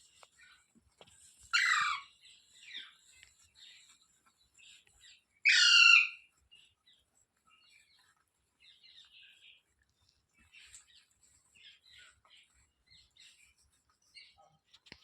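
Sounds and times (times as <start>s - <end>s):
parrot harsh call: 1.6s - 2.1s, 5.5s - 6.2s.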